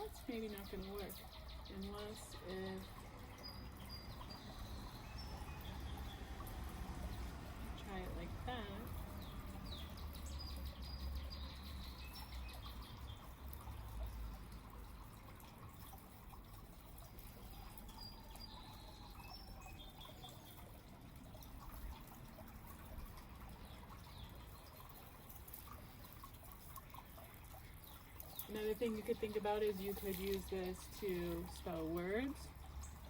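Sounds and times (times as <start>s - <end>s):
small birds chirping: 0.0s - 15.1s, 17.1s - 22.0s, 23.4s - 33.0s.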